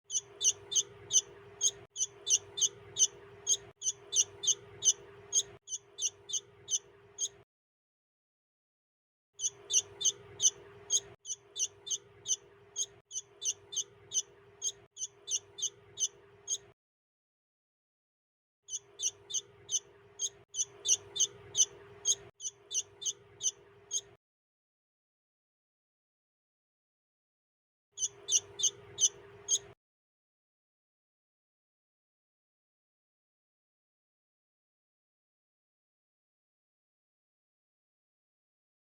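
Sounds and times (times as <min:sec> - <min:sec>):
bird chick chirping: 0:00.0 - 0:07.4, 0:09.4 - 0:16.7, 0:18.7 - 0:24.2, 0:28.0 - 0:29.8.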